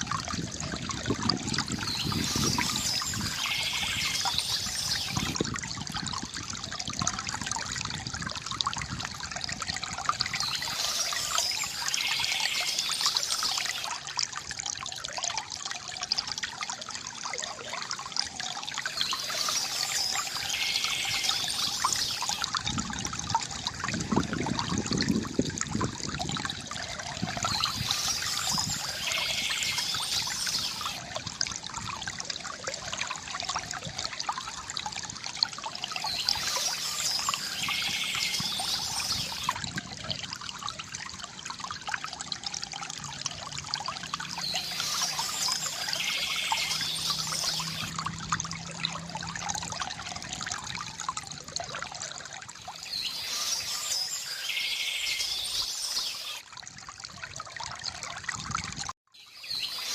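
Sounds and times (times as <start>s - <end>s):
stream trickling and babbling: 0.0s - 59.9s
birdsong: 1.7s - 5.4s, 10.2s - 14.0s, 18.8s - 22.5s, 27.2s - 31.0s, 35.8s - 39.6s, 44.4s - 47.9s, 52.7s - 56.4s, 59.2s - 59.9s.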